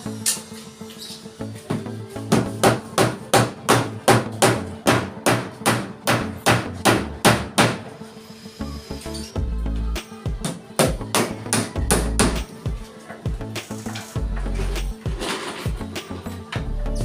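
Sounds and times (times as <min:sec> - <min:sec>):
background music: 0:00.0 - 0:17.0
hammer striking: 0:01.7 - 0:07.9.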